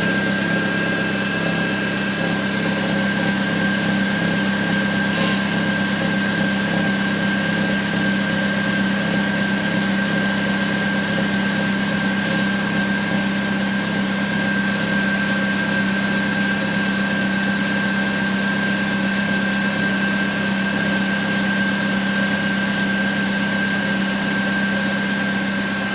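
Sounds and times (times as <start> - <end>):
car engine idling: 0.0 - 16.7
metallic engine noise: 4.6 - 6.8
steady high tone: 4.9 - 6.3.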